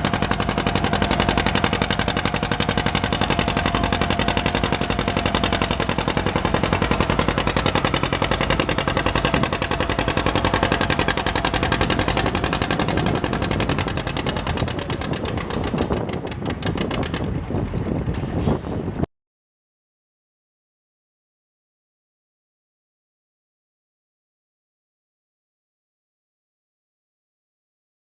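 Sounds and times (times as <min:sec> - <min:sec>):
tractor engine pulling under load: 0:00.0 - 0:19.1.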